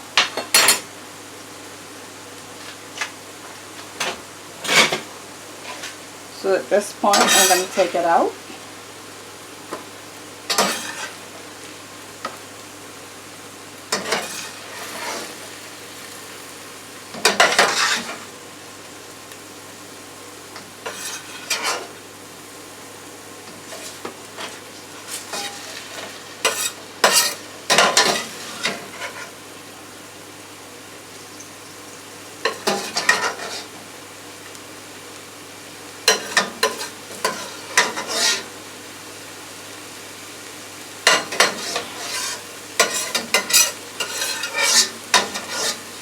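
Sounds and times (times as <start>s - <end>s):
light sizzle: 0.0s - 46.0s
utensil scraping in frying pan: 2.5s - 8.8s, 9.7s - 12.6s, 13.7s - 18.6s, 20.4s - 29.6s, 32.4s - 33.9s, 36.0s - 39.0s, 41.0s - 46.0s.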